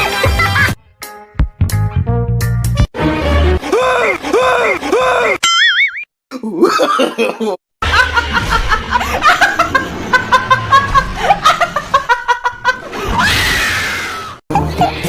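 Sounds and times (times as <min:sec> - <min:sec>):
person laughing: 0:03.6 - 0:05.6, 0:06.3 - 0:13.2, 0:14.5 - 0:15.0.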